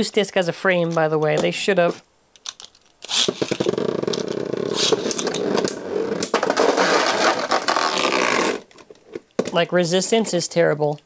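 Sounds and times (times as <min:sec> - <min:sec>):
spinning tops whirring and scraping: 0:03.0 - 0:08.6.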